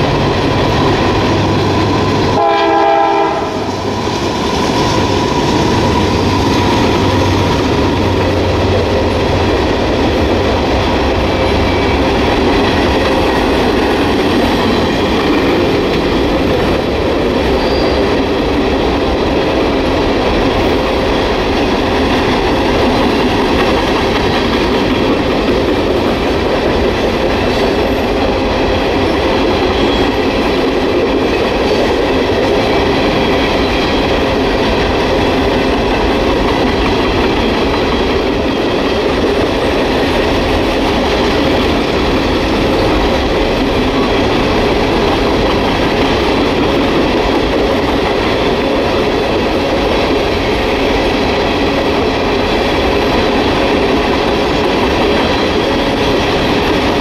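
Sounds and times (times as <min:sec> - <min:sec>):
steel train wheels rumbling on rails: 0:00.0 - 0:57.0.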